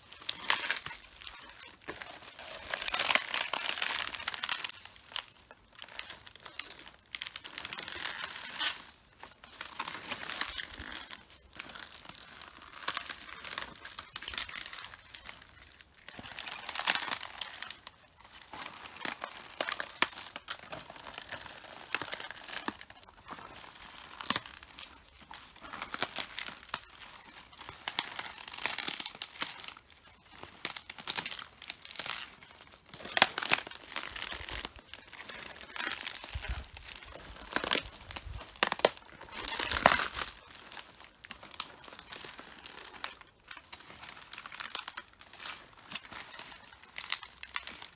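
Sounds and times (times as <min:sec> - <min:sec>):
footsteps crunching on leaves: 0:32.9 - 0:43.0.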